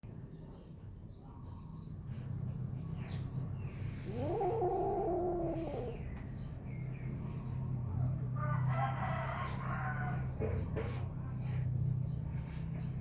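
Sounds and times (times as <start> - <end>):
cat meowing: 4.0 - 6.1.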